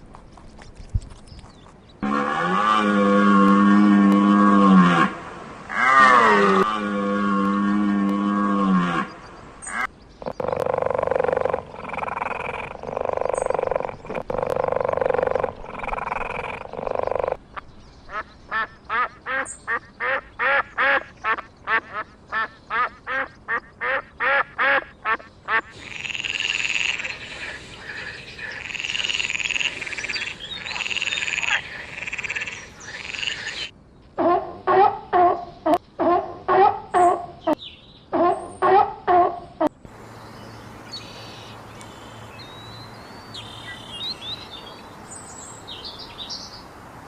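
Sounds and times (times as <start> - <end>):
animal calls: 18.1 - 39.6.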